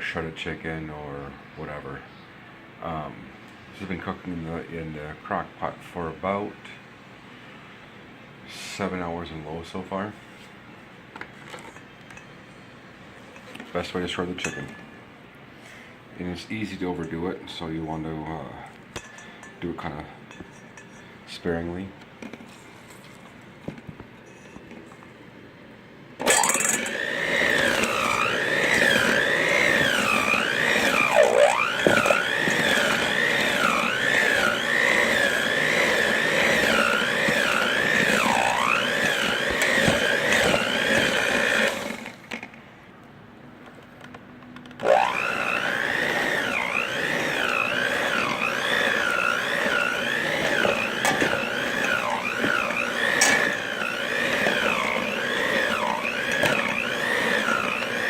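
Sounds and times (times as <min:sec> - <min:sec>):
electric mixer whining: 0:26.2 - 0:42.4, 0:44.8 - 0:58.0.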